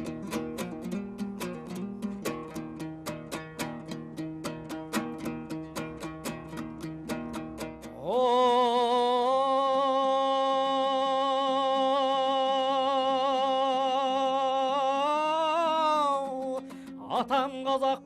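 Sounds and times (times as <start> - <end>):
strummed plucked strings: 0.0 - 18.0
person singing long wordless note: 7.9 - 18.0.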